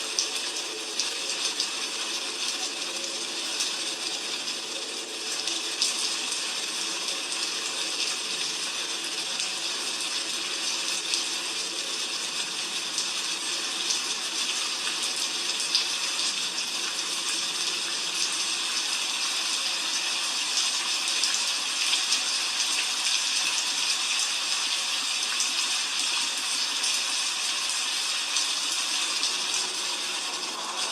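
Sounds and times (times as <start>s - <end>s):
heavy rain falling: 27.0s - 30.9s.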